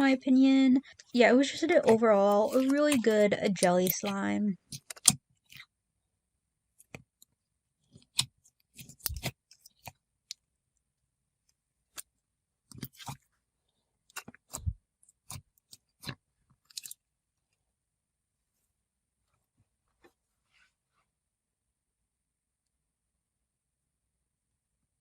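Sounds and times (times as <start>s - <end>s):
slime squished by hand: 8.0s - 10.4s.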